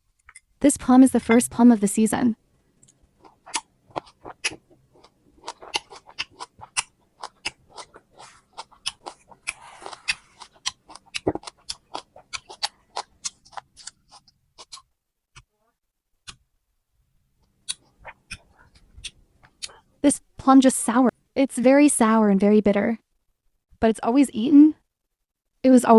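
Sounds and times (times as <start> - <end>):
crunchy chewing: 2.8 - 14.9.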